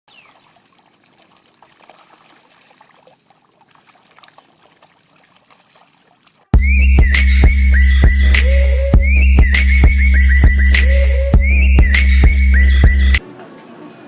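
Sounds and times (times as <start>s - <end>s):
faint trickling water: 0.1s - 6.6s
loud electronic music: 6.6s - 13.2s.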